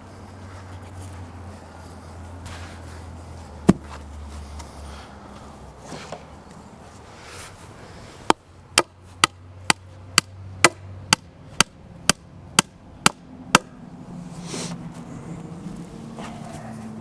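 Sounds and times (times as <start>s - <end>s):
hand tool striking hard: 8.3s - 13.8s.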